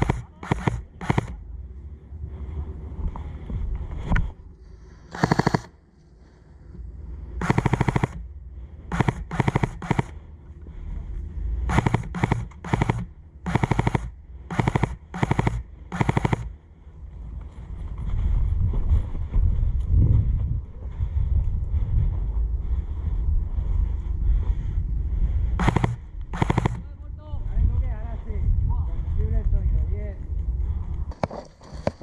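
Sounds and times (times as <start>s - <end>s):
airsoft gun firing bursts: 0.0s - 1.4s, 5.1s - 5.8s, 7.4s - 8.2s, 8.9s - 10.2s, 11.7s - 16.5s, 25.6s - 26.8s.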